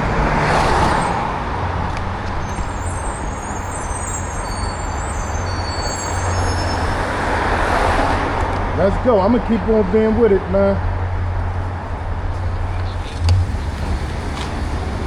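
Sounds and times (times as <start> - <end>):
large vehicle engine hum: 0.0 - 15.0
road traffic noise: 0.0 - 15.0
faint high-pitched squeals: 2.4 - 7.1.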